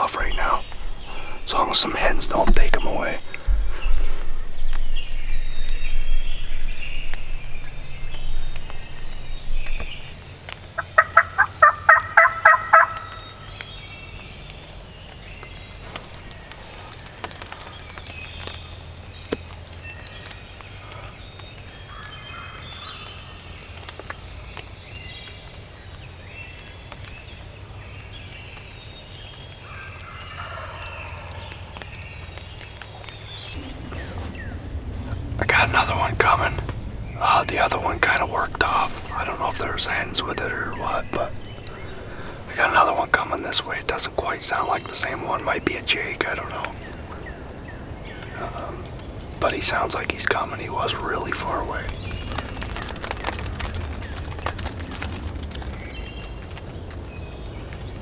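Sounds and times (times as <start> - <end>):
songbirds chirping: 0.0 - 58.0
turkey gobbling: 10.8 - 13.2, 30.1 - 31.7.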